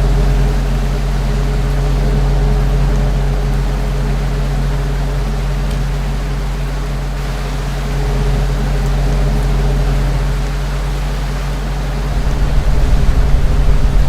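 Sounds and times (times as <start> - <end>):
ceiling fan humming: 0.0 - 14.0
whoosh of moving air: 12.0 - 14.0.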